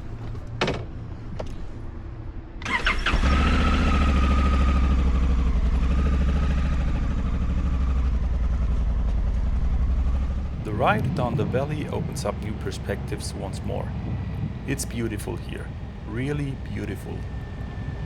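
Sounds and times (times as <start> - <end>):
vehicle drive rumbling: 3.2 - 18.0
faint whine: 10.4 - 18.0.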